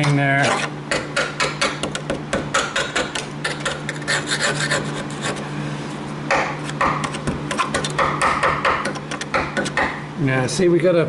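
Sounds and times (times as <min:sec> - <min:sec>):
scraping on metal: 0:00.0 - 0:00.8, 0:02.7 - 0:05.4.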